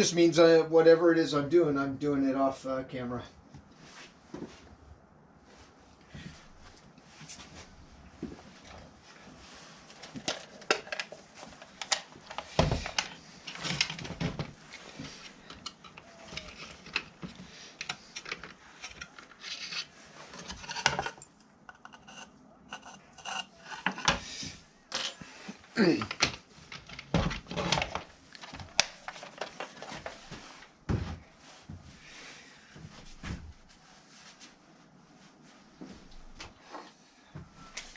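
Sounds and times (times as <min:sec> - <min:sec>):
tools clattering on work surface: 0:10.1 - 0:24.2, 0:24.9 - 0:25.3.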